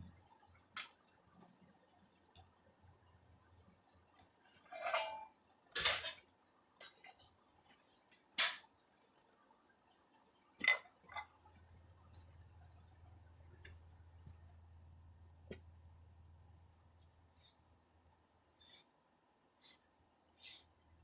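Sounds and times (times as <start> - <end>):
metal tools clanking: 4.6 - 6.2.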